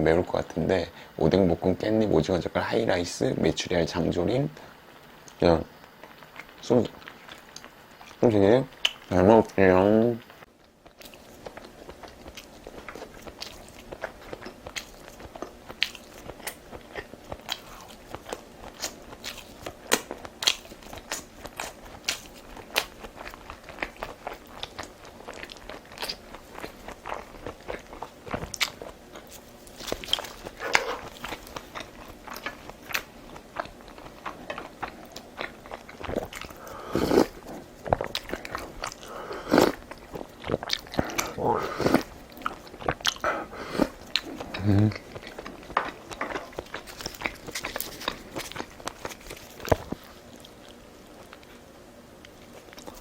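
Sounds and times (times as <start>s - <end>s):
person chewing crunchy food: 10.6s - 53.0s
mouth sound: 40.9s - 42.1s, 43.2s - 45.2s.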